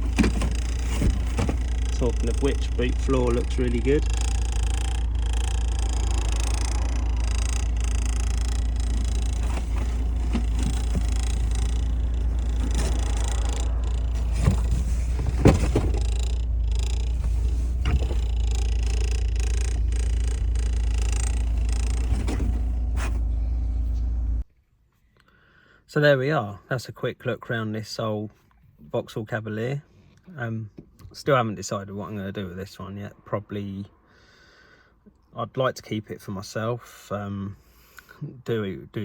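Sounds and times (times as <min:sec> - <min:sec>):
short knocks: 0:00.0 - 0:23.4
car engine idling: 0:00.0 - 0:24.4.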